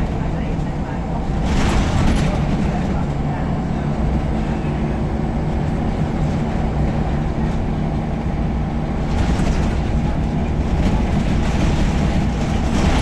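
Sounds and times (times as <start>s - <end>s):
bus diesel engine running: 0.0s - 13.0s
road noise: 0.0s - 13.0s.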